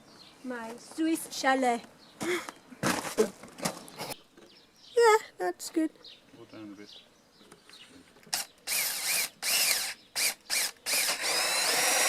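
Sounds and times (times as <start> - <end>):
electric drill motor: 8.3 - 12.0.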